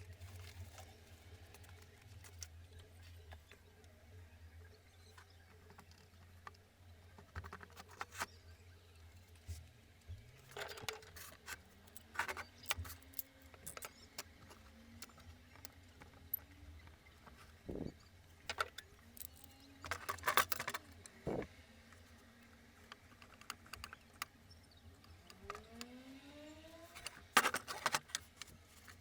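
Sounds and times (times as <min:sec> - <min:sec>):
small objects clicking and tapping: 0:10.4 - 0:21.2.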